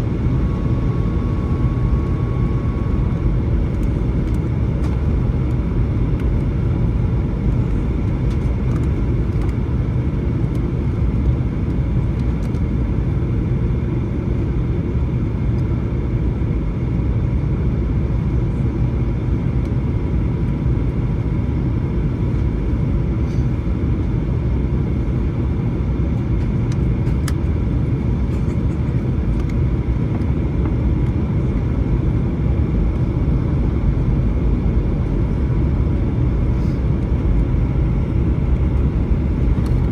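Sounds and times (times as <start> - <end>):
faint steady whine: 0.0 - 14.3
aircraft engine drone: 0.0 - 39.9.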